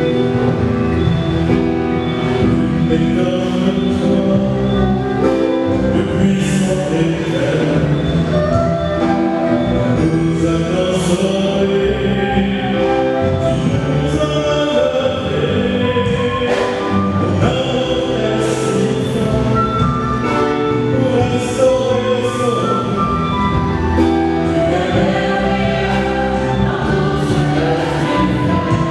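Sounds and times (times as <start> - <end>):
instrumental accompaniment: 0.0 - 28.9
choir singing: 21.0 - 28.9.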